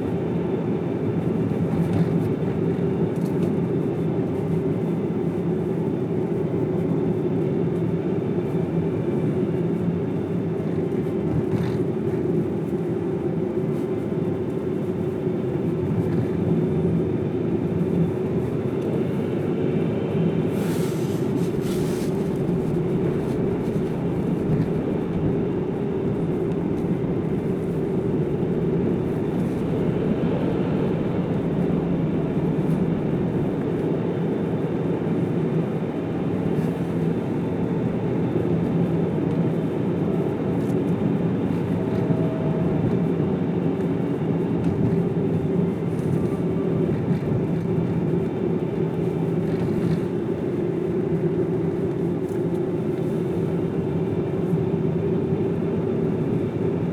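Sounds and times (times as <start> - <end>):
car engine and tyre drone: 21.1 - 34.3.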